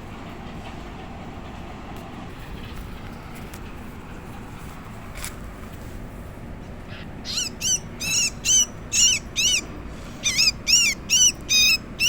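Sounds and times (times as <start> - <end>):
bulbul harsh calls: 6.6 - 12.0.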